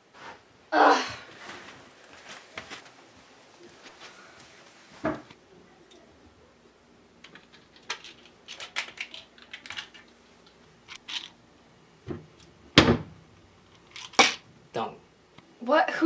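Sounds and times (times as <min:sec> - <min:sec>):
pills rattling in plastic bottle: 0:07.3 - 0:10.1.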